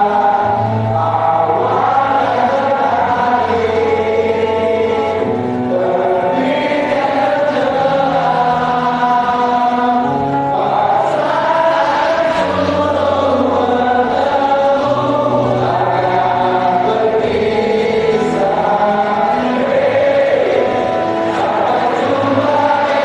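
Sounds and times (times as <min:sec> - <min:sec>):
group of voices singing: 0:00.0 - 0:23.0.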